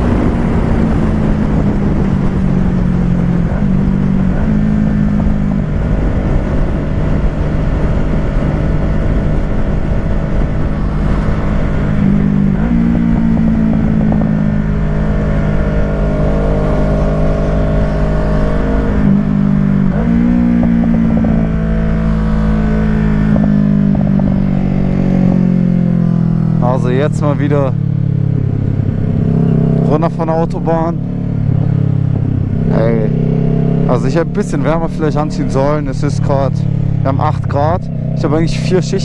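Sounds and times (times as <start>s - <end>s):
wind rush: 0.0s - 27.3s, 30.7s - 33.9s
motorcycle engine at speed: 0.0s - 39.0s.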